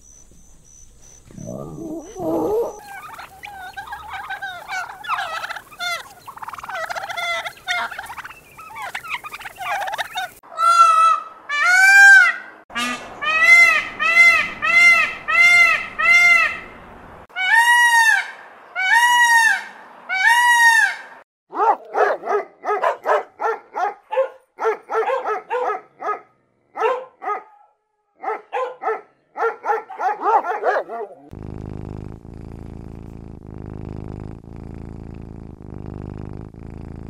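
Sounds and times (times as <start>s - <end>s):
peacock calling: 0.0s - 21.2s
dog yipping: 1.4s - 6.1s, 21.6s - 26.2s, 26.8s - 27.6s, 28.2s - 31.3s.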